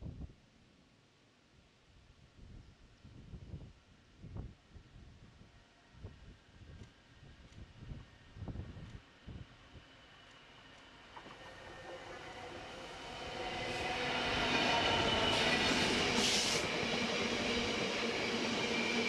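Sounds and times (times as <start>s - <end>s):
diesel locomotive passing: 8.1s - 19.0s
brief hiss: 15.3s - 16.7s.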